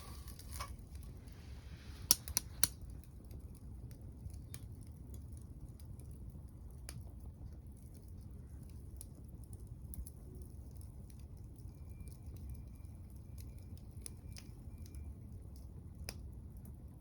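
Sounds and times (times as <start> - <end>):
low steady rumble: 0.0 - 4.4
wood fire crackling and popping: 0.0 - 17.0.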